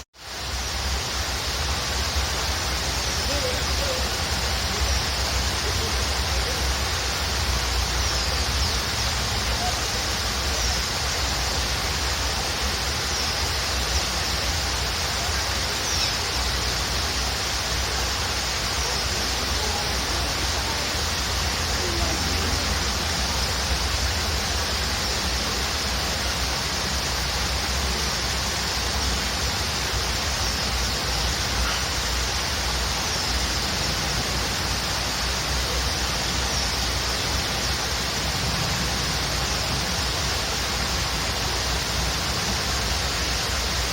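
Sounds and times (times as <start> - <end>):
waterfall rushing: 0.0 - 43.9
faint bird chirps: 12.7 - 17.3, 30.2 - 33.8.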